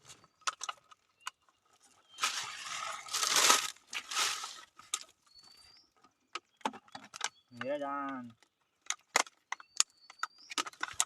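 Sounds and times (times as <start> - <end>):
crinkling rustling handling noise: 0.0 - 5.3.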